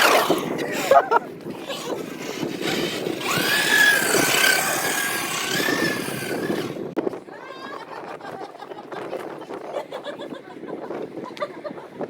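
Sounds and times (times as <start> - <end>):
engine noise: 0.0 - 7.0.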